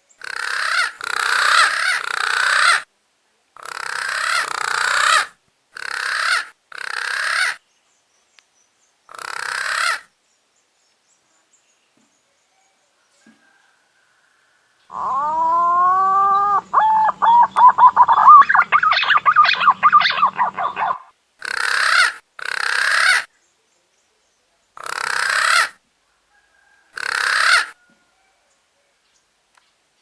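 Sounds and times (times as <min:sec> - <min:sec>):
harsh hissing rasps: 0:14.9 - 0:21.1
pigeon whistled song: 0:15.0 - 0:21.1.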